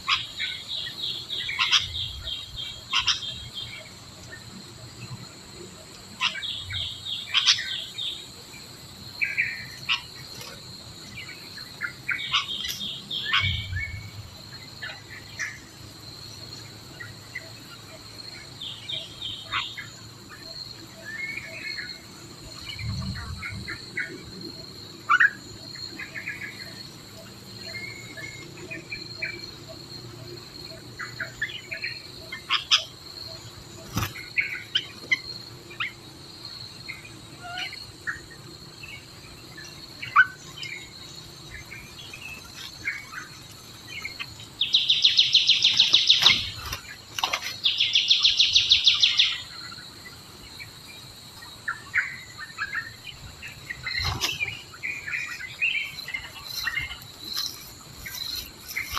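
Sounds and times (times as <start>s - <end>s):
birds chirping and whistling: 0.0s - 3.9s, 11.2s - 14.2s, 39.0s - 49.6s, 51.6s - 58.9s
high insect drone: 0.0s - 58.9s.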